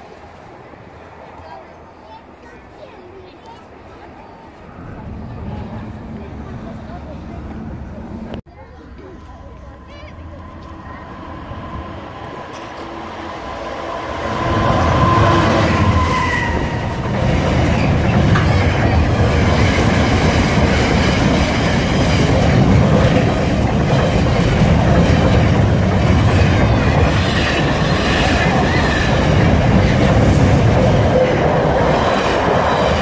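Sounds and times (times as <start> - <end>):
diesel locomotive passing: 0.0 - 33.0
freight wagons rumbling and clattering: 9.4 - 33.0.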